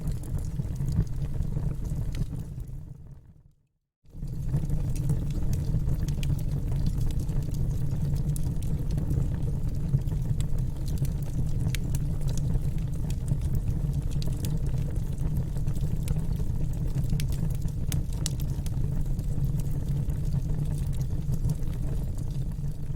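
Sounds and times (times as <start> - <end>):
fire crackling and popping: 0.0 - 3.0, 4.2 - 22.9
wood fire rumbling: 0.0 - 3.3, 4.1 - 22.9.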